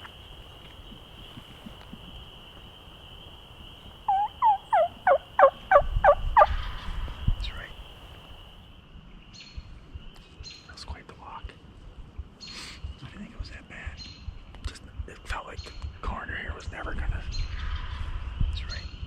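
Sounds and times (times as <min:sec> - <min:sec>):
turkey yelping: 0:04.1 - 0:06.6.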